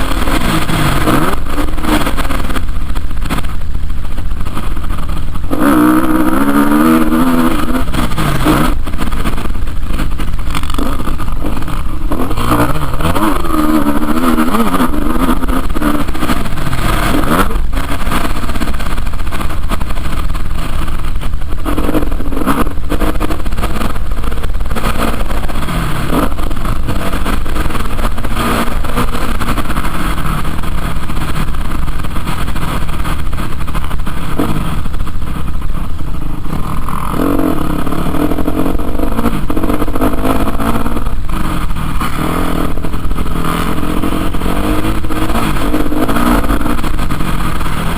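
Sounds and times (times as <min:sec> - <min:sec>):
motocross bike engine revving: 0:00.0 - 0:47.9.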